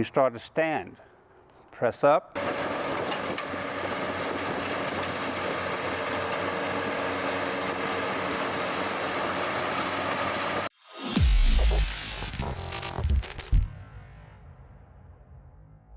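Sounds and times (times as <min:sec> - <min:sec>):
mechanical drone with humming tones: 0:11.4 - 0:13.7.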